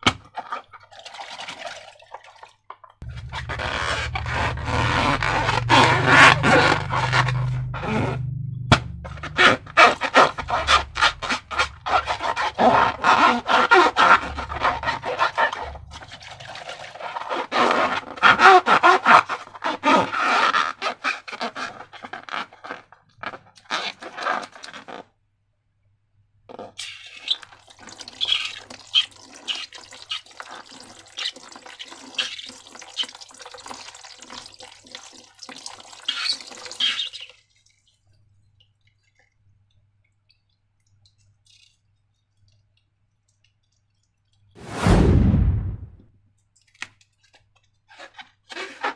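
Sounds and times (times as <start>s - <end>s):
slime squelching and crackling: 3.0s - 18.1s.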